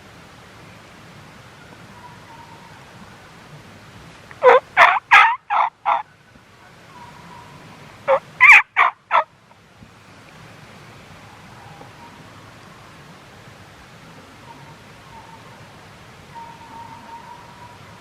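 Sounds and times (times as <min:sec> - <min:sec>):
turkey yelping: 0:04.4 - 0:06.0, 0:08.1 - 0:09.3.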